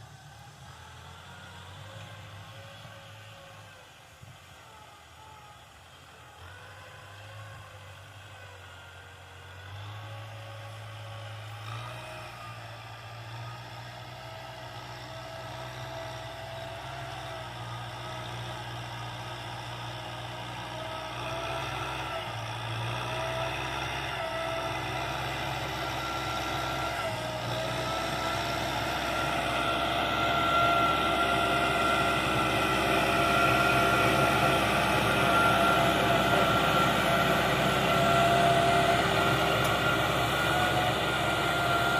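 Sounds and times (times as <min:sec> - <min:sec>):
tractor engine running: 0:00.0 - 0:41.9
wavering whine: 0:28.2 - 0:41.9.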